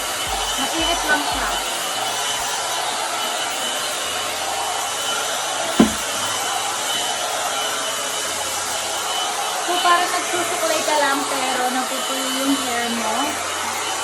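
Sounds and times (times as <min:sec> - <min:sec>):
hair dryer blowing: 0:00.0 - 0:14.0
brief thump: 0:05.8 - 0:06.3.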